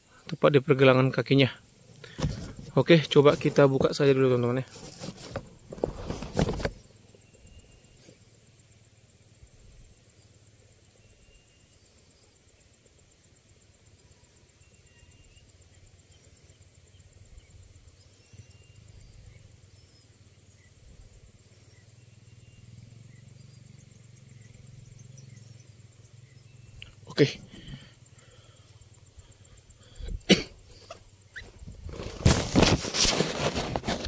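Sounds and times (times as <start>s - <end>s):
faint short chirps: 18.0s - 18.9s, 29.9s - 31.6s.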